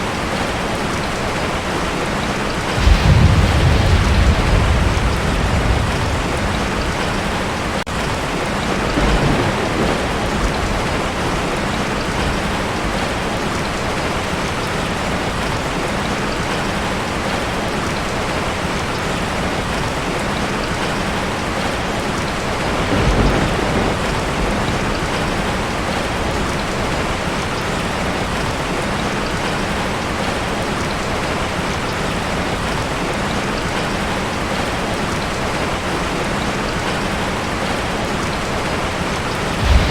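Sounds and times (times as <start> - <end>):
heavy rain on a tin roof: 0.0 - 39.9
thunder rumbles: 2.6 - 13.3, 22.5 - 28.5, 39.3 - 39.9.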